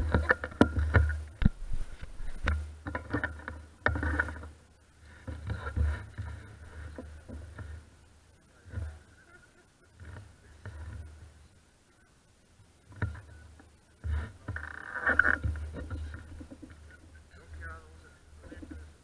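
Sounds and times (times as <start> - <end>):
sharp knocks over rough ground: 0.0 - 4.5.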